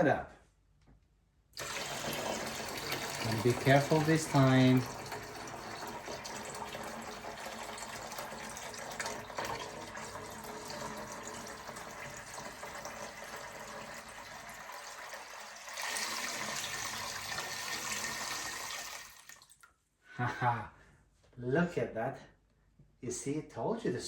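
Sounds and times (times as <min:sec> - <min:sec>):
water running into a container: 0:01.6 - 0:19.7.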